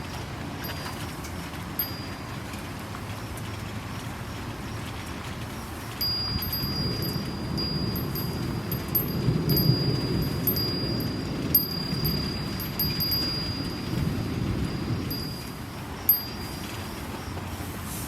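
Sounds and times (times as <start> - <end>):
steady rain: 0.0 - 18.0
wind chime tinkling: 1.8 - 2.3, 6.0 - 17.6.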